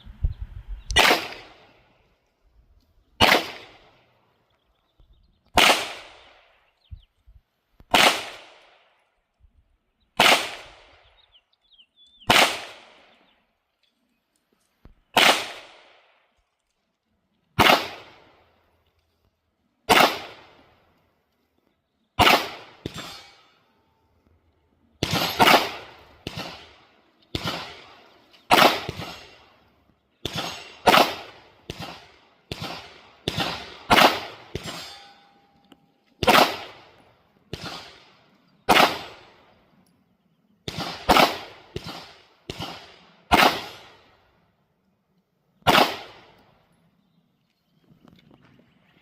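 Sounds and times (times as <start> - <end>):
pistol shots echoing: 1.0 - 1.8, 3.2 - 4.1, 5.5 - 6.7, 7.9 - 9.0, 10.2 - 11.2, 12.2 - 13.3, 15.1 - 16.3, 17.6 - 18.5, 19.9 - 20.8, 22.2 - 23.6, 25.0 - 35.0, 36.2 - 39.6, 40.6 - 44.2, 45.6 - 46.5.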